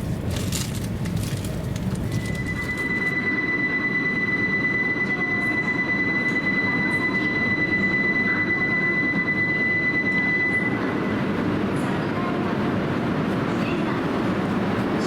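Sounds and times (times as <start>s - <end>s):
low train cabin rumble: 0.0s - 15.0s
high steady squeal: 2.0s - 11.5s.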